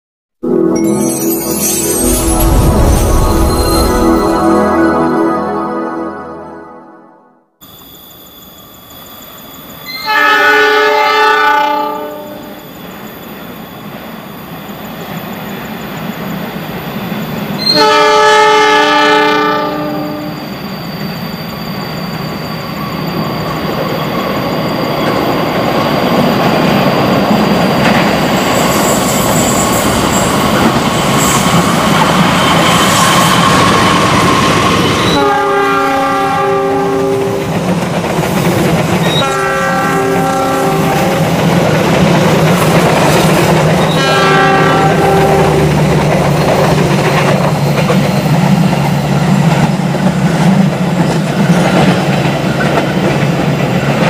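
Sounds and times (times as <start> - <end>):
locomotive air horn: 10.0 - 12.6, 17.6 - 20.4, 35.1 - 37.4, 39.1 - 41.2, 43.9 - 45.7.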